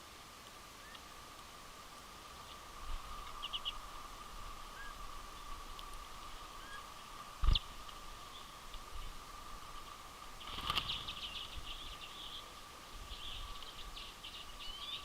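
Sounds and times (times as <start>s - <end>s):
faint high hum: 0.0s - 15.0s
finches chirping: 3.2s - 4.0s, 6.6s - 8.6s, 10.4s - 15.0s.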